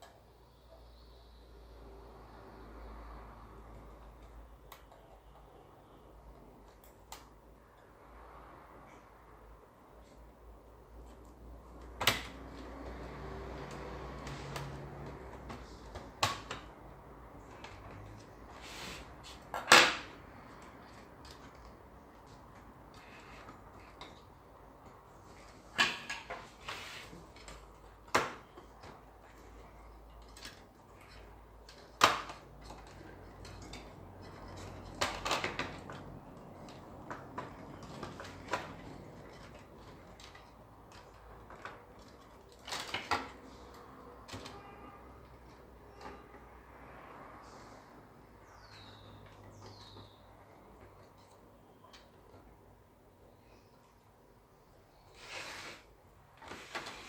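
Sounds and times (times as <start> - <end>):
clicks and knocks of small objects: 25.6 - 44.6.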